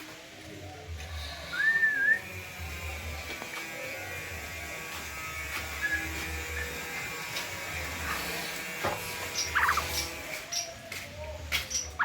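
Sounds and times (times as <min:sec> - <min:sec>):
starling whistled notes: 0:01.5 - 0:02.4, 0:05.7 - 0:07.0.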